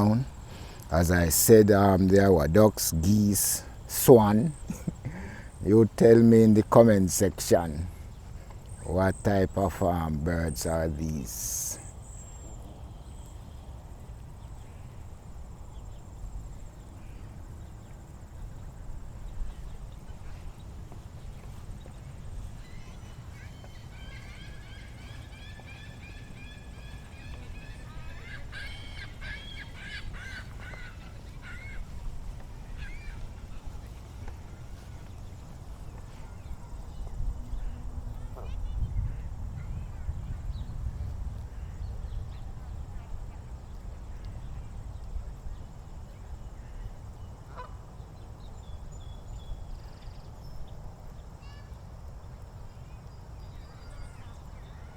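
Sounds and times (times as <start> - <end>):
faint high bird chirps: 19.2 - 39.2
geese honking: 22.5 - 33.8.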